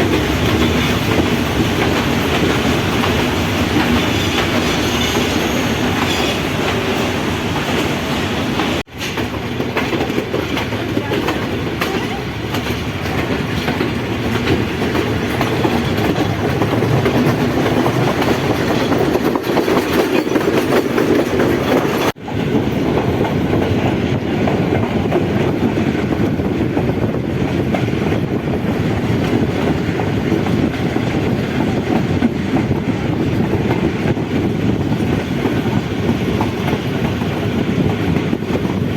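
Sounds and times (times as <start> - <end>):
train rumbling on track: 0.0 - 38.9
wheels clattering over rails: 8.8 - 38.9.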